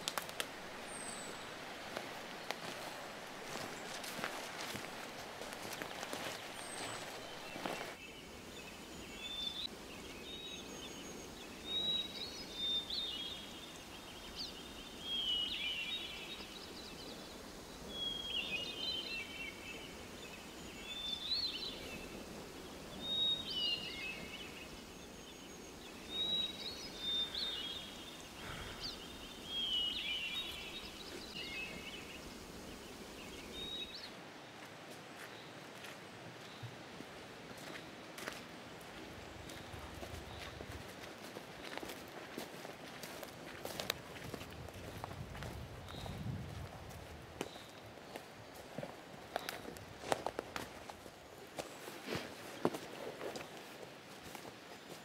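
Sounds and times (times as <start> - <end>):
forest background hush: 0.0 - 55.0
songbird chirping: 0.0 - 55.0.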